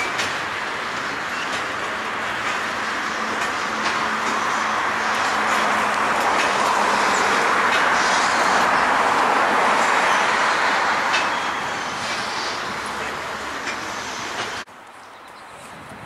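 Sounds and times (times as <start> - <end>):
train wheels rolling on rails: 0.0 - 14.9.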